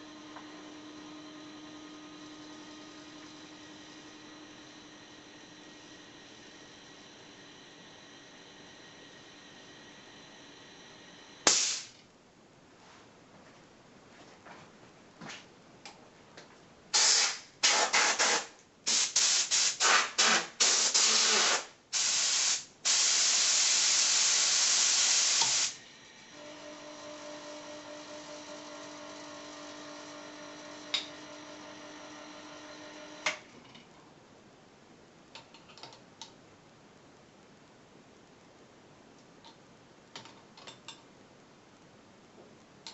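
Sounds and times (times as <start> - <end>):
air compressor humming: 11.4 - 11.9, 16.9 - 26.5
compressed air hissing: 11.5 - 11.9, 17.0 - 25.8
compressor cut-off click: 11.5 - 11.9.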